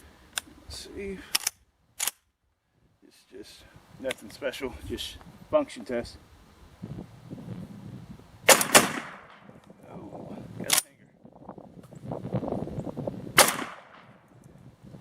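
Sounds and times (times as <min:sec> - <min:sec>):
shotgun shots: 0:08.5 - 0:09.5, 0:13.4 - 0:14.2.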